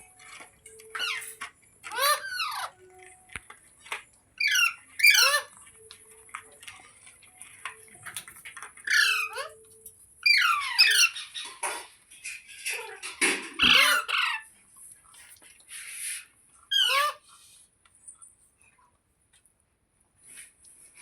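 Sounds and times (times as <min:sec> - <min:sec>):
parrot squawking: 0:00.8 - 0:03.1, 0:04.4 - 0:05.6, 0:08.8 - 0:09.6, 0:10.2 - 0:11.7, 0:12.6 - 0:14.5, 0:16.0 - 0:17.3.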